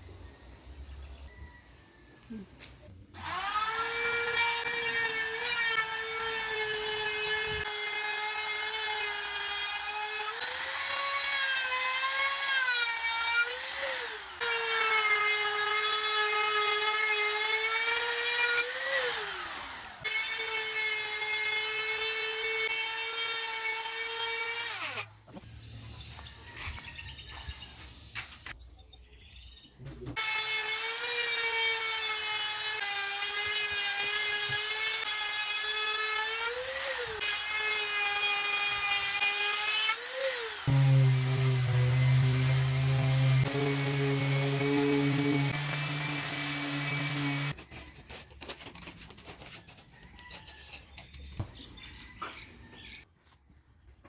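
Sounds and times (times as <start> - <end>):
power tool motor whine: 39.6 - 47.6.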